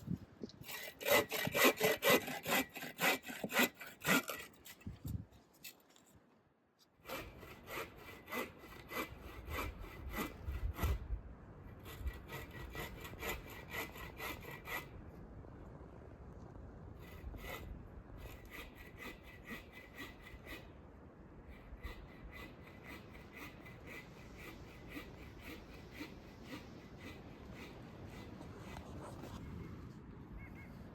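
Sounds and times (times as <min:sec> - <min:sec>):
hand saw cutting wood: 0:00.6 - 0:05.8, 0:07.0 - 0:11.0, 0:11.8 - 0:14.9, 0:17.1 - 0:20.7, 0:21.8 - 0:29.0.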